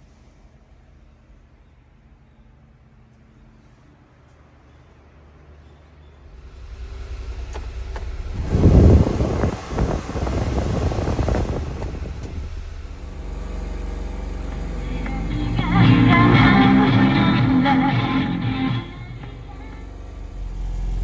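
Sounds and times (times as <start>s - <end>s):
small truck engine running: 6.3s - 21.0s.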